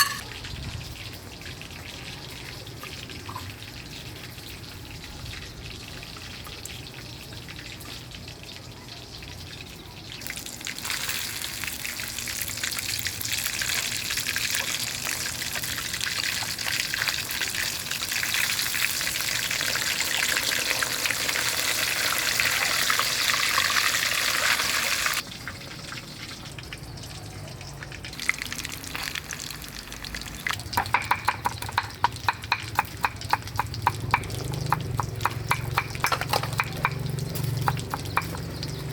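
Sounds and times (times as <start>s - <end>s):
fish sizzling in hot oil: 10.0s - 38.9s.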